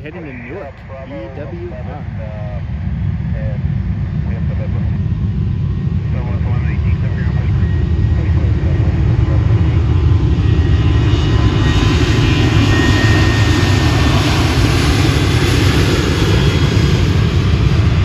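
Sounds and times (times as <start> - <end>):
jet engines at takeoff power: 0.0 - 18.0.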